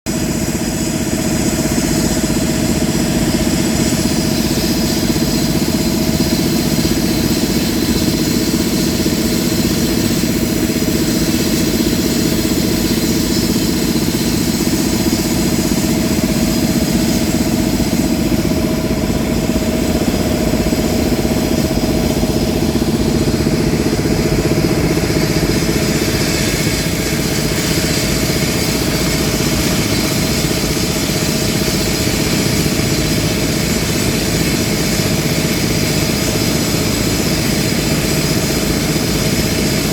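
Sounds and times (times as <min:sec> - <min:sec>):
heavy machinery engine droning: 0:02.5 - 0:32.6.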